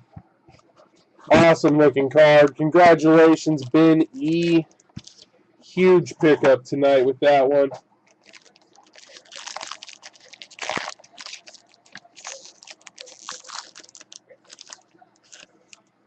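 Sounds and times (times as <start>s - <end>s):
packaging crinkling: 4.2s - 5.3s, 8.1s - 15.9s.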